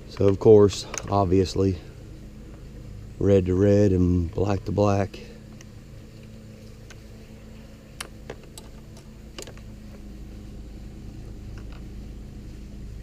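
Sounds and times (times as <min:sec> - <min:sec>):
steady low hum: 0:00.0 - 0:13.0
light clicks and taps: 0:00.1 - 0:01.2.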